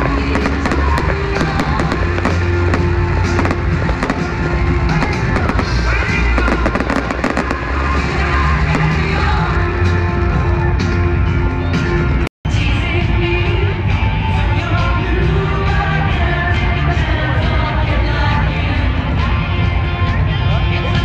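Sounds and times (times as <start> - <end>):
fireworks bangs and crackles: 0.0 - 9.6
loud music with heavy bass: 0.0 - 21.0.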